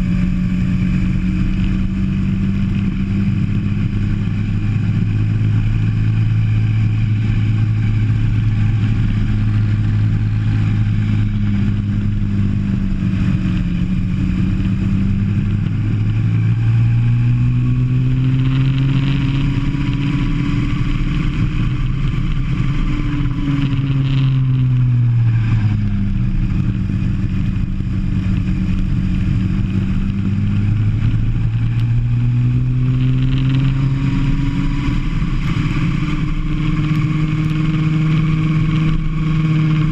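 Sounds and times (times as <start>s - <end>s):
go-kart engine running hard: 0.0s - 39.9s.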